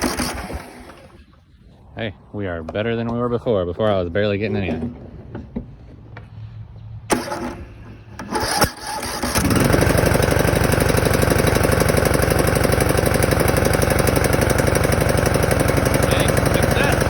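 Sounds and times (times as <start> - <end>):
mower engine starting and running: 0.0 - 1.4, 7.1 - 17.0.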